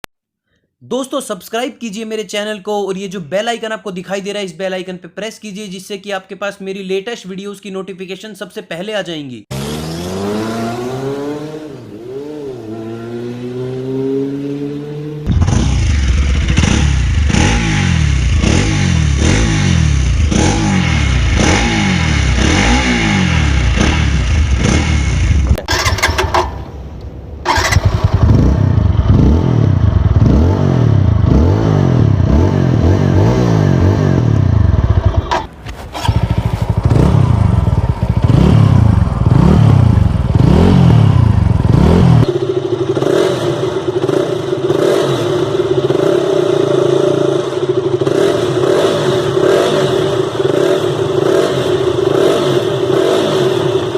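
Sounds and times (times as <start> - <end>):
motorcycle engine revving: 9.5 - 26.7, 27.4 - 53.9
motorcycle idling: 15.3 - 22.5, 27.5 - 31.3, 34.3 - 53.9.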